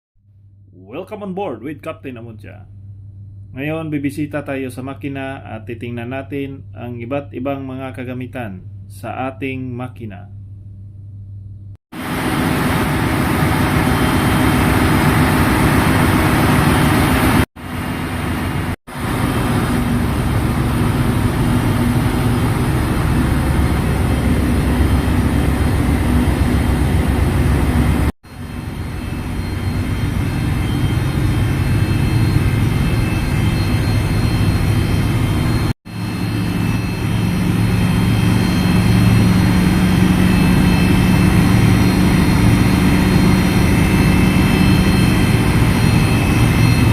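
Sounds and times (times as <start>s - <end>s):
engine room machinery drone: 0.4s - 46.9s.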